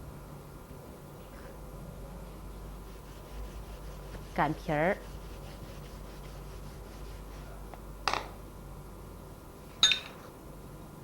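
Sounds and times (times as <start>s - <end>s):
faint background hum: 0.0s - 11.0s
metallic ring: 9.8s - 10.3s.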